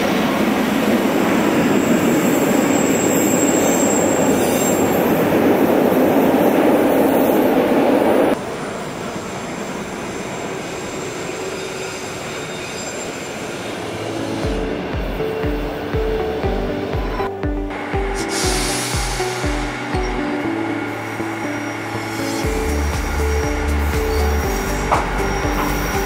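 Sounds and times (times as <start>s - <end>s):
train wheels rumbling on rail: 0.0s - 26.0s
high wheel squeal: 1.7s - 5.3s, 10.1s - 14.4s, 21.2s - 26.0s.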